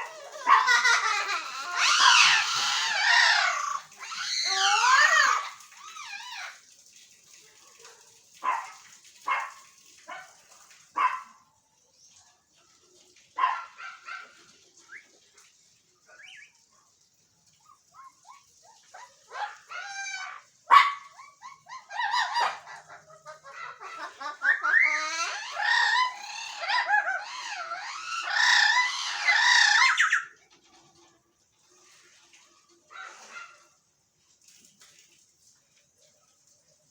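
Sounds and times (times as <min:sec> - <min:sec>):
parrots calling: 0:00.0 - 0:06.6, 0:16.1 - 0:16.6, 0:17.9 - 0:30.4.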